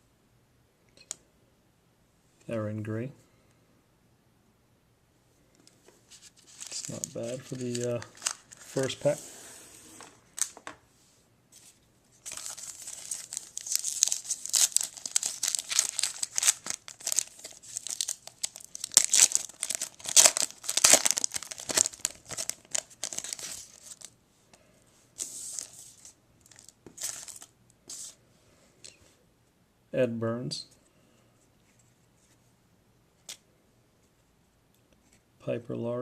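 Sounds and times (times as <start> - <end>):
plastic wrapper crinkling: 6.1 - 9.1, 10.3 - 10.7, 12.2 - 24.2, 25.2 - 27.5.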